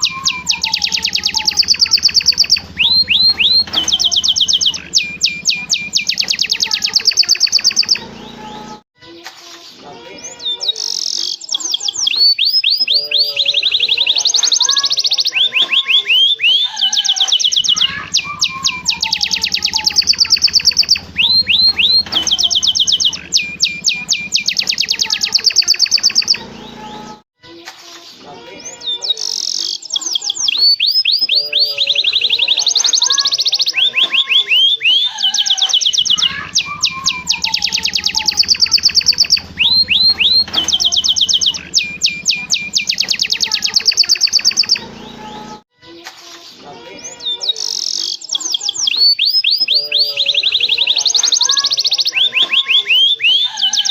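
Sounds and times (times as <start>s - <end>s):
canary singing trills: 0.0s - 8.8s, 9.9s - 27.2s, 28.3s - 45.6s, 46.8s - 53.9s.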